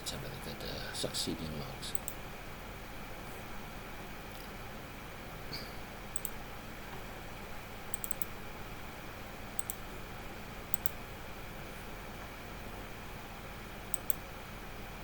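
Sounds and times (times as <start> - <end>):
steady low hiss: 0.0 - 15.0
computer clicks: 1.9 - 2.2, 6.1 - 6.4, 7.9 - 8.4, 9.5 - 9.9, 10.7 - 11.0, 13.9 - 14.2.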